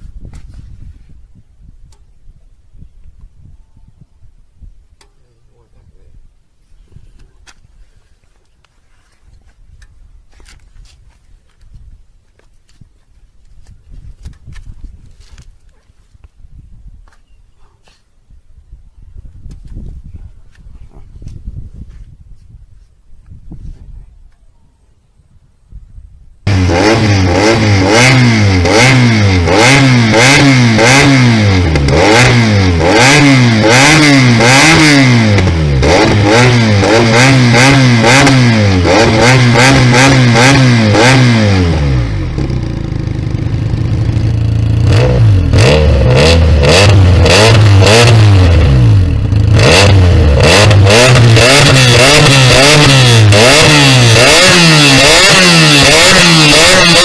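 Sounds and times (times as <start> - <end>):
motorcycle engine revving: 26.5 - 57.0.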